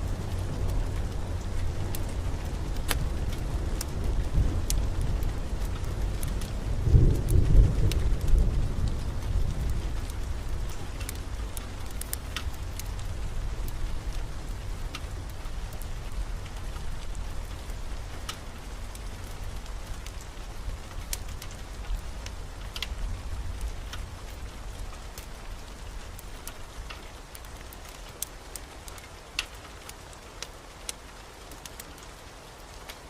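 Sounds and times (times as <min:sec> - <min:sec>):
low thunder rumble: 0:00.0 - 0:11.9
sharp raindrop ticks: 0:00.0 - 0:33.0
steady rain: 0:00.0 - 0:33.0.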